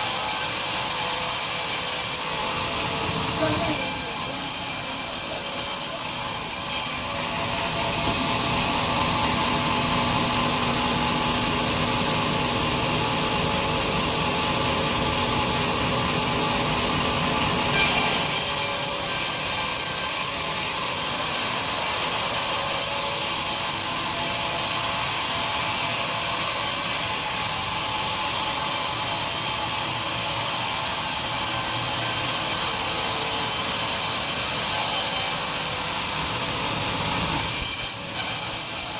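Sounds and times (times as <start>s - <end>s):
bandsaw cutting through log: 0.0s - 9.3s, 17.4s - 38.9s.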